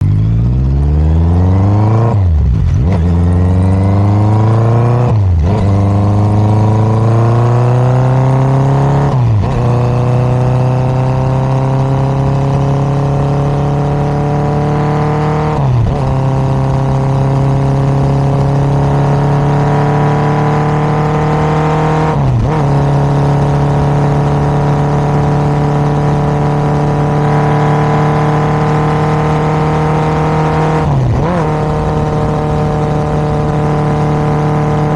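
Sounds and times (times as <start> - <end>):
motorcycle engine revving high: 0.0 - 34.9.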